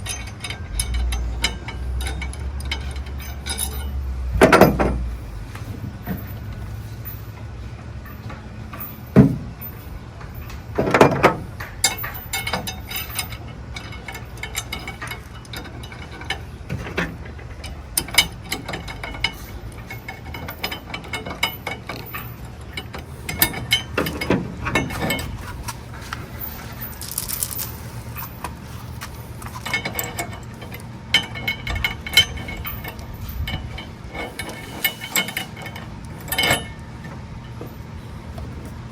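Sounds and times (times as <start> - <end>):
metal chain clinking: 23.3 - 36.8.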